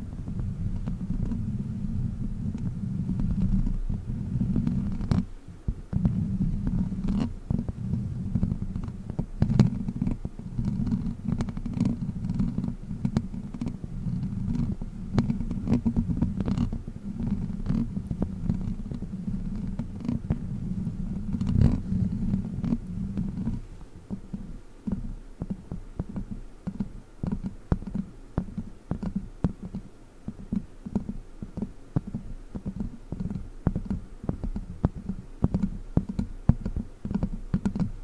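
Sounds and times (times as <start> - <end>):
prop rubbed on microphone: 17.6 - 23.9
sharp clicks and scratches: 21.2 - 24.2, 24.9 - 38.0.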